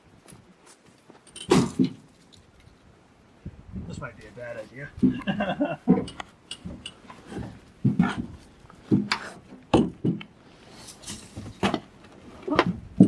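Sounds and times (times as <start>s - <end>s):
footsteps knocking and scuffing: 5.0s - 9.2s.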